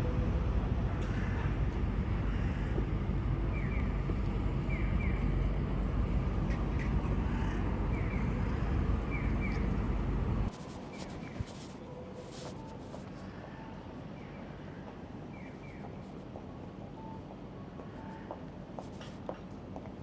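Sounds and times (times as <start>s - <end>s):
motorcycle engine low rumble: 0.0s - 10.6s.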